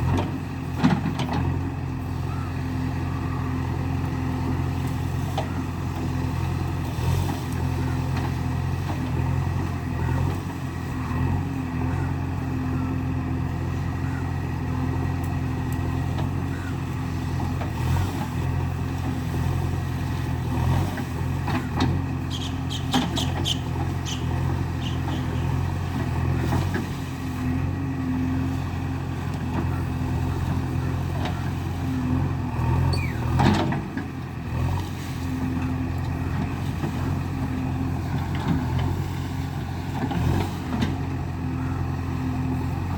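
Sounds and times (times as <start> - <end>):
diesel engine running: 0.0 - 42.9
brief falling squeal: 32.9 - 33.3.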